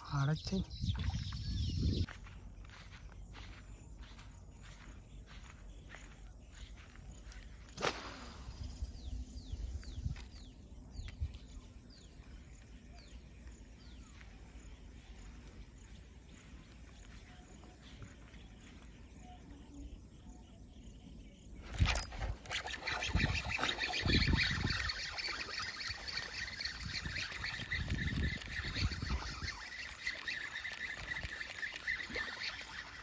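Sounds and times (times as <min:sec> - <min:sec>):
lure smacking water: 0:21.7 - 0:33.0
bird whistling: 0:21.8 - 0:33.0.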